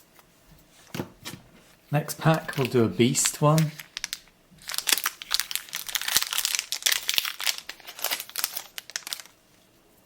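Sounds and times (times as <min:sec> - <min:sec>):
plastic wrapper tearing and crinkling: 0:02.0 - 0:09.4.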